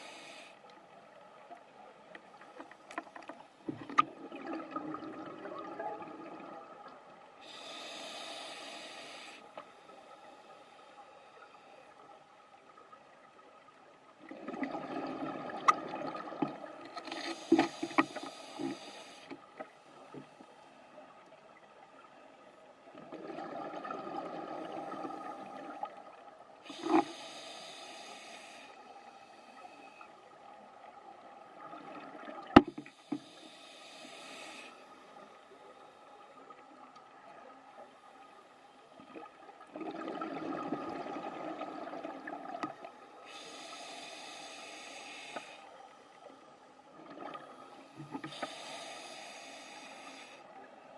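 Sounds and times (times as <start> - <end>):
scuba regulator breathing underwater: 0.0 - 0.6, 7.4 - 11.8, 17.1 - 19.4, 26.6 - 30.1, 32.9 - 36.0, 43.2 - 45.8, 47.5 - 50.5.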